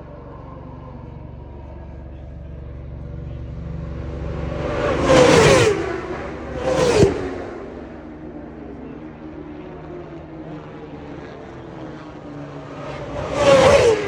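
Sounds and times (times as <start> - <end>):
racing motorbike engines passing: 0.1 - 14.0.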